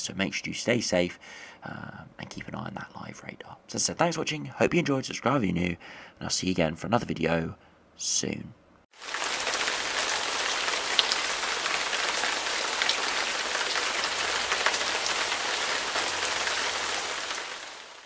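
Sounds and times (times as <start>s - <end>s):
rain falling: 8.9s - 18.0s
sharp raindrop hits: 9.0s - 18.0s.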